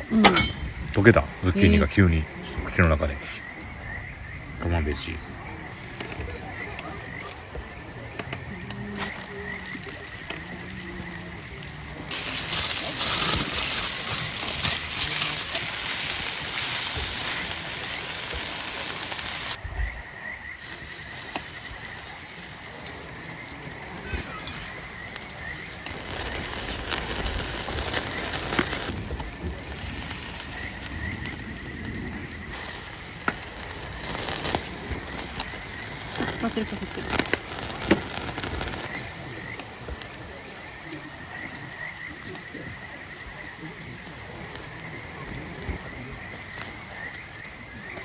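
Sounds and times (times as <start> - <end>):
faint crackles: 0.0 - 48.0
food sizzling on a grill: 0.1 - 2.2, 8.8 - 19.6, 20.6 - 48.0.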